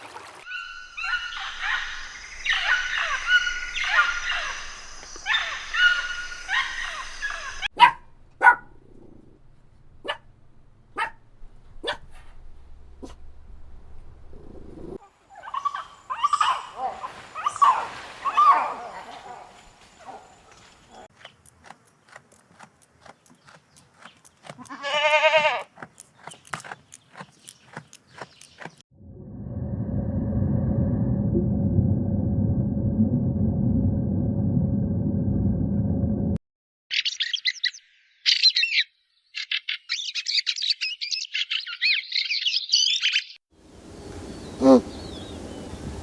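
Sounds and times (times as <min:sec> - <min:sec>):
songbird chirping and trilling: 0:00.5 - 0:08.7, 0:09.5 - 0:17.8, 0:22.6 - 0:28.8, 0:36.9 - 0:46.0
farm animal bleating: 0:24.4 - 0:25.7.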